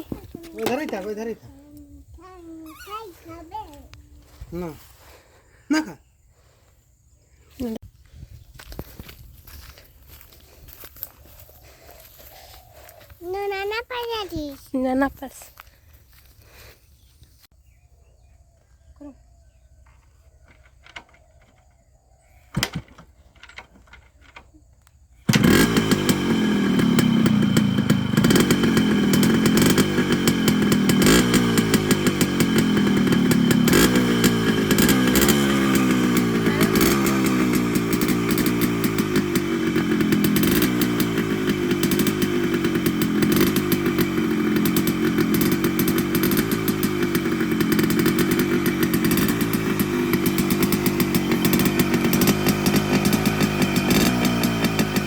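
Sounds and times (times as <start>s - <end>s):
motorcycle engine revving: 0.0s - 1.7s, 25.2s - 55.0s
kickstart knocks: 22.5s - 24.5s, 25.3s - 55.0s.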